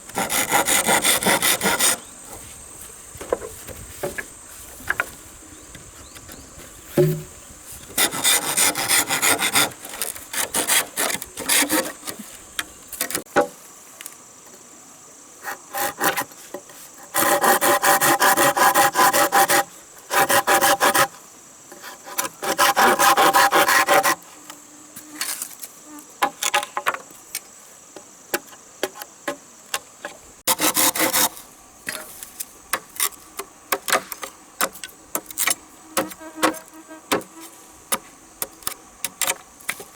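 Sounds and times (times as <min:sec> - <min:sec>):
hand tool strokes on wood: 0:00.0 - 0:13.3, 0:15.4 - 0:24.4, 0:30.4 - 0:39.9
high insect drone: 0:00.0 - 0:39.9
knocks: 0:07.0 - 0:07.4.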